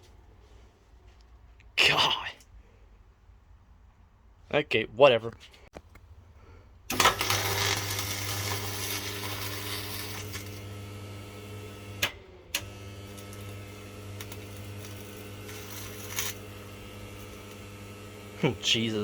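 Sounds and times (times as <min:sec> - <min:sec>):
sewing machine motor running: 0:06.9 - 0:19.0
motor switch click: 0:11.9 - 0:14.6.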